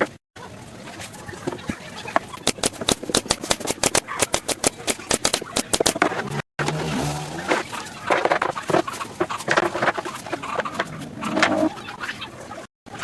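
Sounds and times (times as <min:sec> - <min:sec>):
fast sharp knocks: 0:02.4 - 0:06.0.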